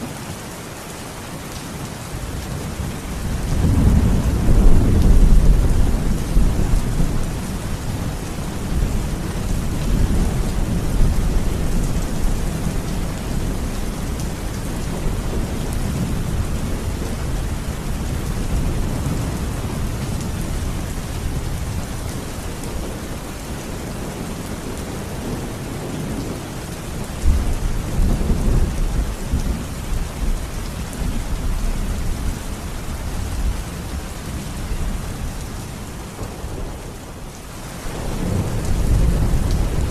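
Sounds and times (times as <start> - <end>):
rain falling: 0.0 - 39.9
low rolling thunder: 2.8 - 23.1, 27.0 - 35.4, 37.8 - 39.9.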